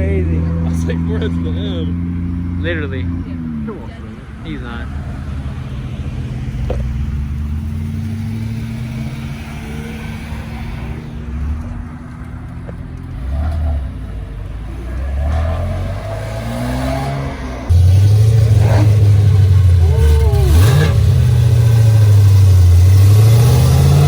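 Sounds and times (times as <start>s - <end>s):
car engines revving: 0.0s - 24.0s
loud engine: 0.0s - 24.0s.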